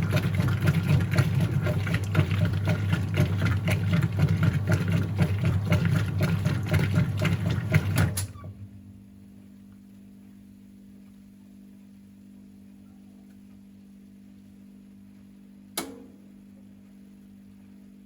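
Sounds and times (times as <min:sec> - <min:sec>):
washing machine motor hum: 0:00.0 - 0:10.9.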